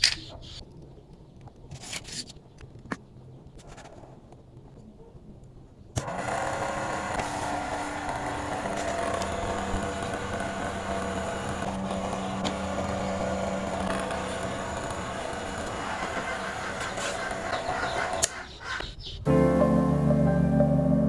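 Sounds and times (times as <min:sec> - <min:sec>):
small motor fan humming: 0:06.0 - 0:18.4.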